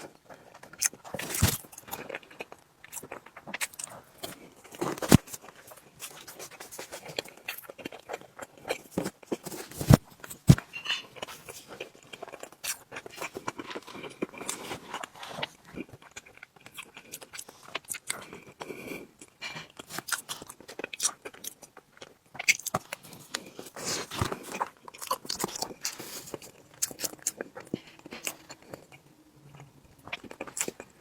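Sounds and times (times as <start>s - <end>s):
chewing and mouth smacks: 11.2s - 31.0s.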